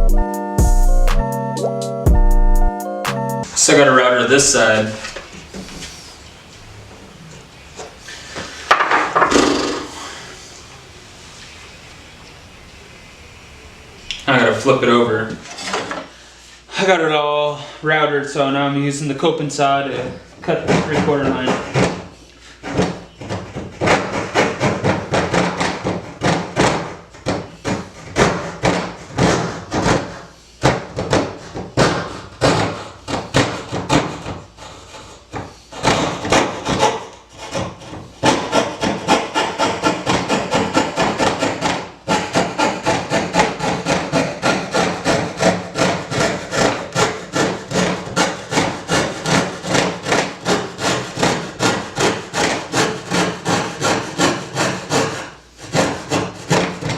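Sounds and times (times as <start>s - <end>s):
hand saw cutting wood: 20.0s - 56.9s.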